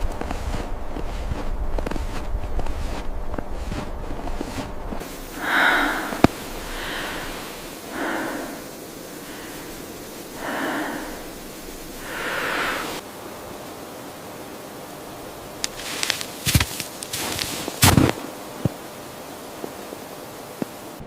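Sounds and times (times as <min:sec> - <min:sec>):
steady hiss: 0:00.0 - 0:21.0
heavy breathing: 0:04.6 - 0:13.0.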